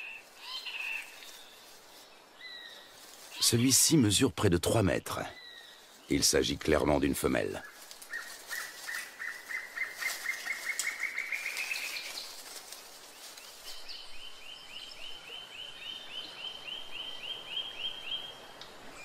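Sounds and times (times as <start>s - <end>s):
bird calls: 0.0s - 3.8s, 4.9s - 6.5s, 7.3s - 12.6s.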